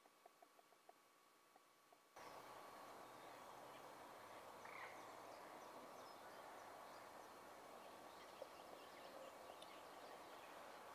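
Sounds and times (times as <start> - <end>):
distant birds chirping: 0.0 - 10.9
outdoor background hiss: 0.0 - 10.9.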